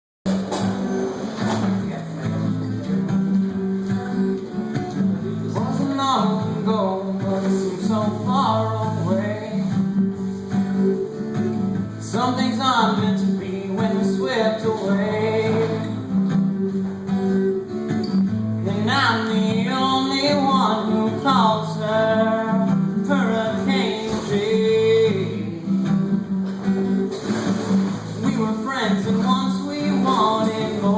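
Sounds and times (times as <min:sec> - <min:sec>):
strummed acoustic guitar: 0:00.2 - 0:30.9.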